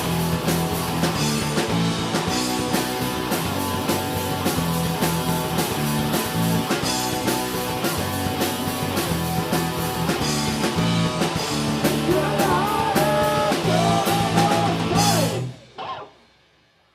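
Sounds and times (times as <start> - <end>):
punk rock band playing: 0.0 - 16.6
person singing: 12.0 - 16.1.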